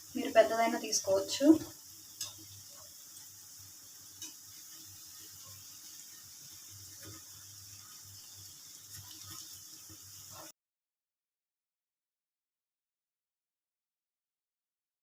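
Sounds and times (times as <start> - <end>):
food deep-frying in hot oil: 0.0 - 10.6.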